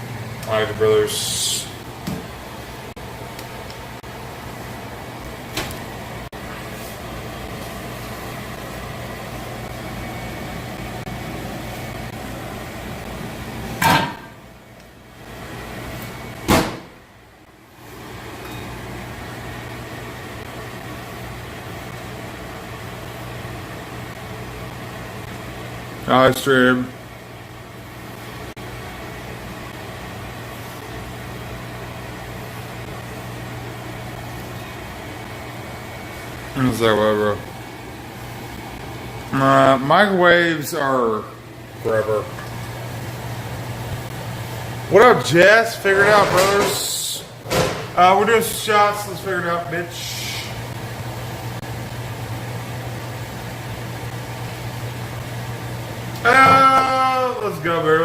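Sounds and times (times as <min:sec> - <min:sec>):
fan-like hiss: 0:00.0 - 0:58.0
steady mechanical hum: 0:00.0 - 0:58.0
loud clunk: 0:13.8 - 0:14.4, 0:16.4 - 0:17.0, 0:46.0 - 0:48.0.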